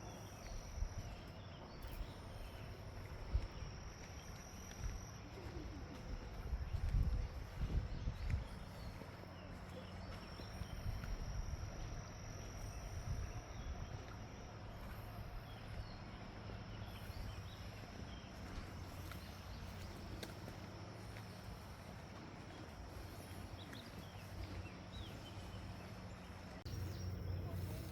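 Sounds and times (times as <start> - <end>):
high-pitched insect drone: 0.0 - 27.9.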